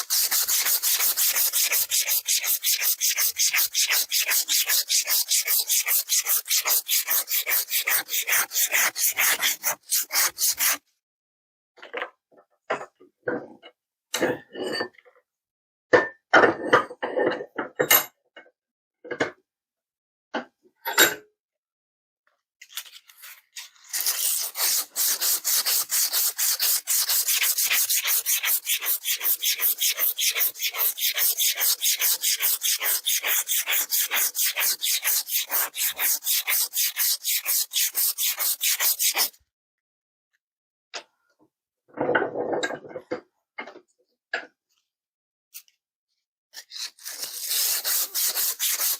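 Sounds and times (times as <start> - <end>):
filing metal rasping: 0.0 - 10.8, 24.0 - 39.3.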